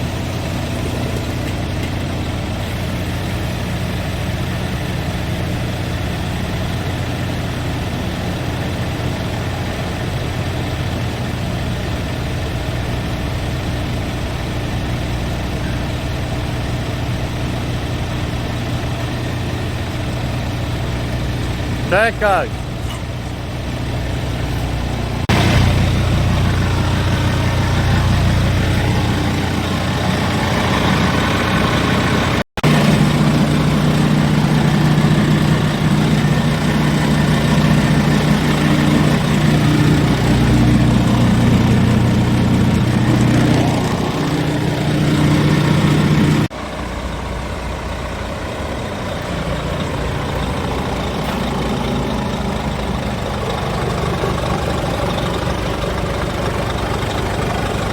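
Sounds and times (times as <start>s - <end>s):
truck diesel engine running: 0.0s - 57.9s.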